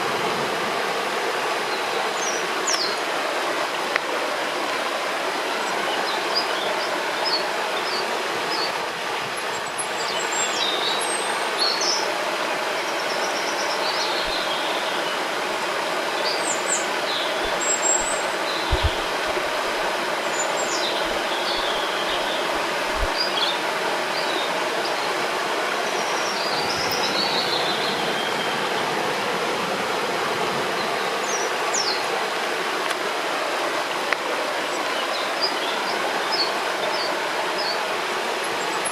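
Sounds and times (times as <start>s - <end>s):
water rushing: 0.0s - 38.9s
small birds chirping: 12.9s - 15.2s, 16.1s - 25.0s.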